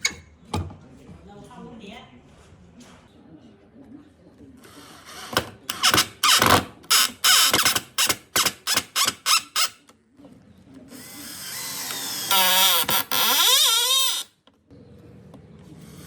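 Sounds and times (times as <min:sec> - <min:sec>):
power drill motor whine: 0:11.0 - 0:14.3.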